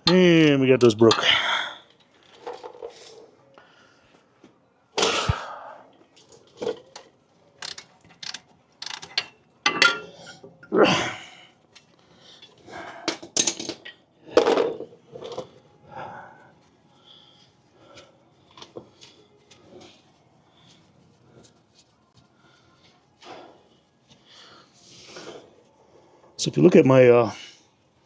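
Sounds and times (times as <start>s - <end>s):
ratchet clicks: 7.6s - 9.3s
metal clunks: 7.6s - 10.2s.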